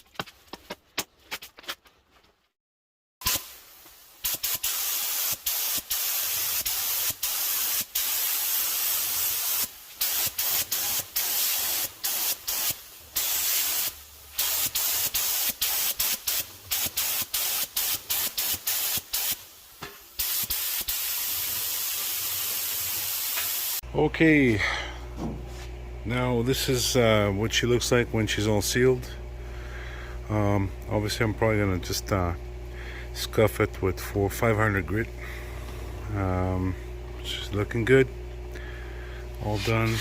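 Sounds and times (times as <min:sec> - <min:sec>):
spray can hissing in bursts: 0:03.2 - 0:23.8, 0:39.5 - 0:40.0.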